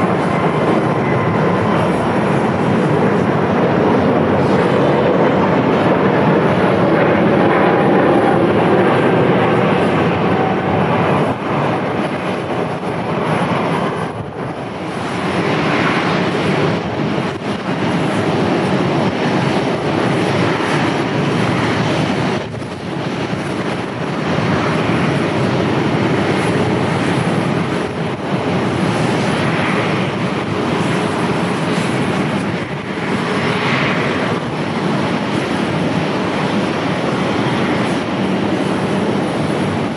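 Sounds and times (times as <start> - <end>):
airliner engine rush: 0.0 - 39.9.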